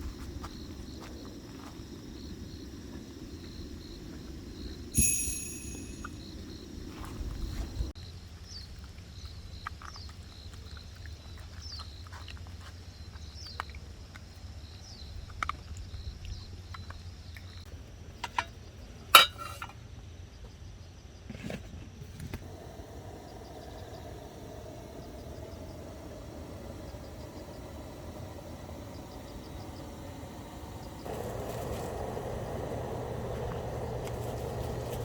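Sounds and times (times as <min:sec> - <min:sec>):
short falling chirp: 0:05.0 - 0:06.2
faint crackles: 0:22.1 - 0:35.0
engine hum: 0:22.3 - 0:35.0.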